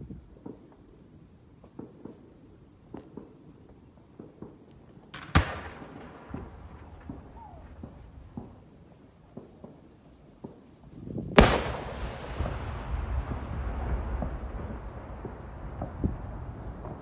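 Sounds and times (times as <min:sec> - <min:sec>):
faint scattered pops: 0:04.1 - 0:10.7
rolling echo: 0:04.1 - 0:17.0.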